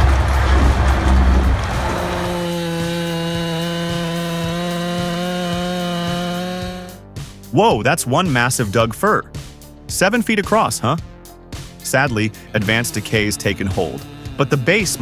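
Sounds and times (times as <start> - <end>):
heavy low rumble: 0.0 - 3.1
chainsaw running at high revs: 0.0 - 7.1, 12.0 - 15.0.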